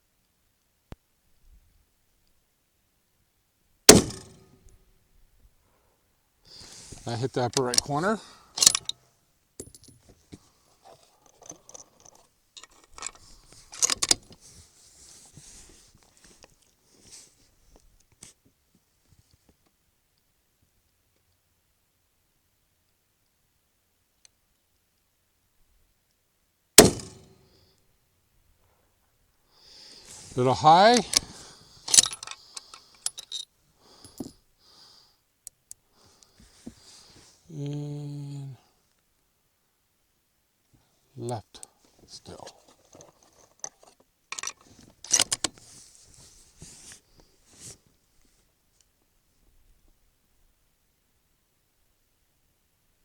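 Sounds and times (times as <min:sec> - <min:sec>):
rifle metallic clicks and rattles: 0:07.5 - 0:07.9, 0:08.6 - 0:09.0, 0:10.9 - 0:14.4, 0:31.9 - 0:34.3, 0:42.3 - 0:45.6
rifle bolt clicking: 0:08.6 - 0:08.9, 0:26.8 - 0:27.2.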